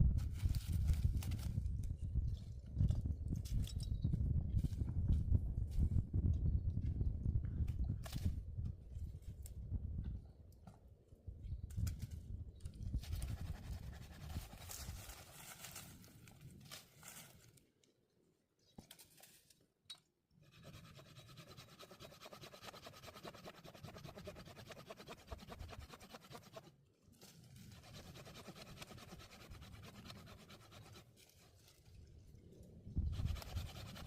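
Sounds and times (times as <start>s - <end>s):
handsaw cutting wood: 20.5s - 26.7s, 27.7s - 31.1s, 33.1s - 34.0s.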